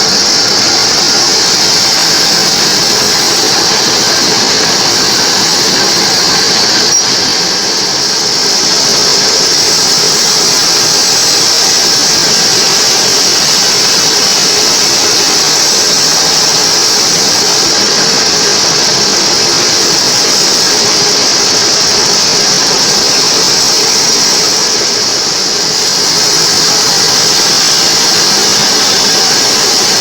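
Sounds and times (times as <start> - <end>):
bandsaw sawing wood: 0.0 - 10.1.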